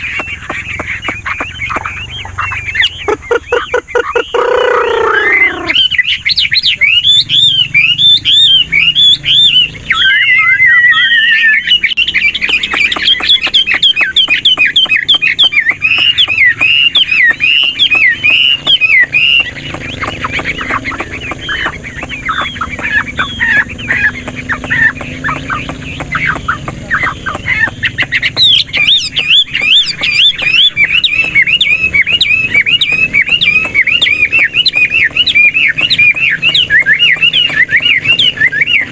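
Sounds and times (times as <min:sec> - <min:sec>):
bird singing whistled notes: 0:00.0 - 0:38.9.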